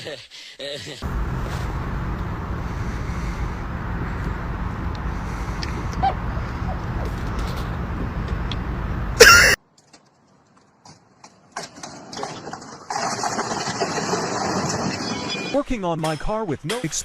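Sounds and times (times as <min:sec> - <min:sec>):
car rumbling on the move: 0:01.0 - 0:09.6.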